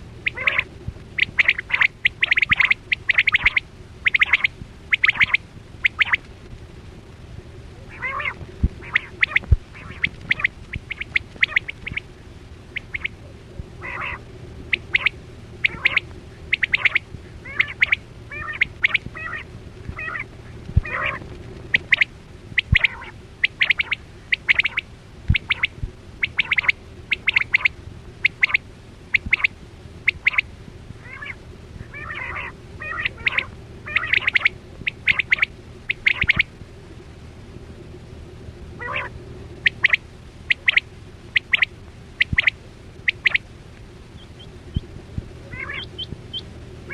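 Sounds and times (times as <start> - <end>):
quail calling: 0.0 - 6.3, 7.8 - 36.5, 38.8 - 43.5, 44.1 - 46.9
steady low hum: 0.0 - 46.9.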